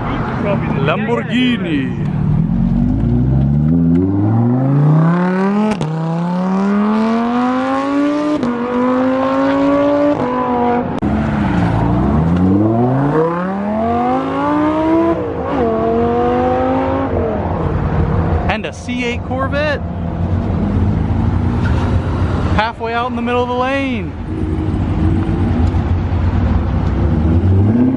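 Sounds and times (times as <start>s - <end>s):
sports car accelerating hard: 2.0s - 18.4s, 24.2s - 27.9s.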